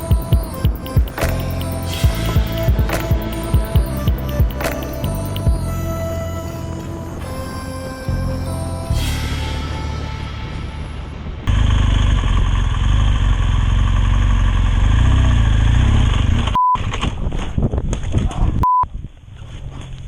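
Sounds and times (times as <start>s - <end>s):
motorcycle engine rumble: 0.0s - 16.5s
heavy wind noise: 16.8s - 19.6s.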